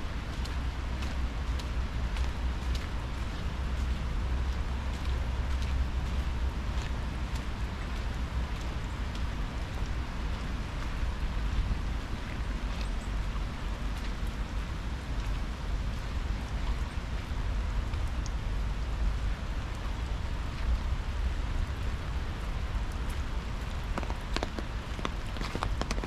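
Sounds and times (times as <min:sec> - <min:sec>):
steady rain falling: 0:00.0 - 0:26.0
sharp taps: 0:23.9 - 0:26.0.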